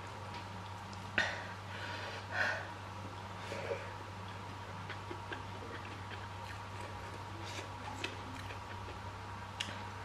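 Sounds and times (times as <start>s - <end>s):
steady low hum: 0.0s - 10.0s
soft chewing: 0.1s - 1.2s, 3.1s - 10.0s.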